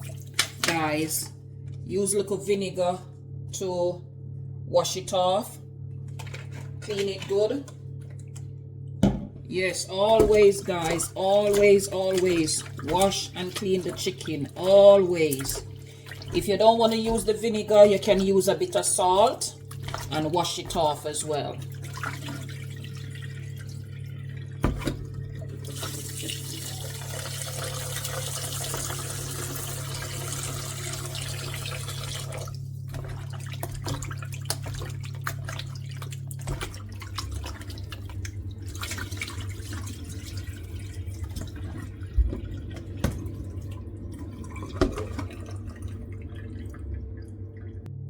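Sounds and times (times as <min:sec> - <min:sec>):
splashing in sink: 0:00.0 - 0:01.1, 0:06.1 - 0:47.8
steady low hum: 0:00.0 - 0:27.7, 0:28.9 - 0:48.0
tap water running into sink: 0:10.0 - 0:46.9.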